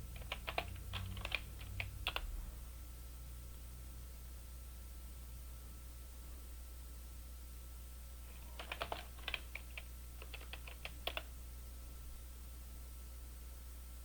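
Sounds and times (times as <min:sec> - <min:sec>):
computer keyboard typing: 0:00.0 - 0:02.3, 0:08.3 - 0:11.3
faint low hum: 0:00.0 - 0:14.0.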